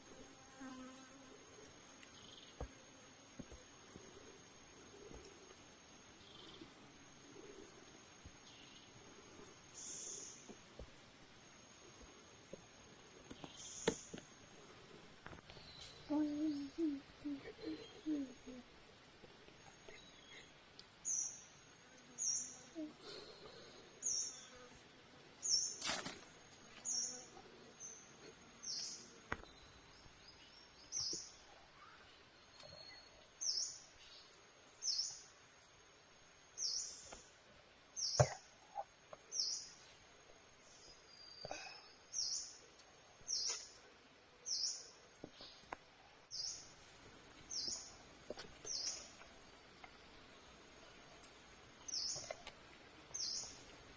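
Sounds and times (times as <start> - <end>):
bird chirping: 15.5 - 18.6, 48.6 - 49.2, 50.8 - 52.4, 53.1 - 53.7.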